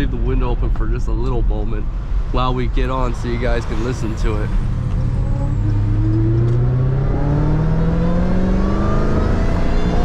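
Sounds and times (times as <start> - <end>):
car engine accelerating hard: 3.8 - 10.0
supercharger whine: 4.4 - 10.0.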